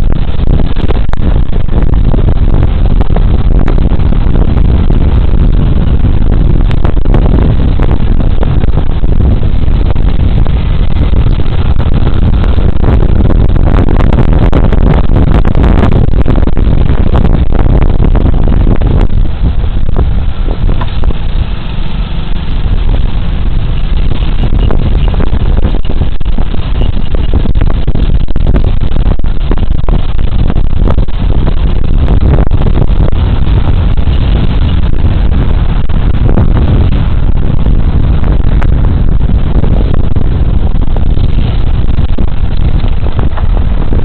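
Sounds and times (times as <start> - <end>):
road noise: 0.0 - 44.0
wind buffeting microphone: 0.0 - 44.0
scooter engine: 19.1 - 25.0.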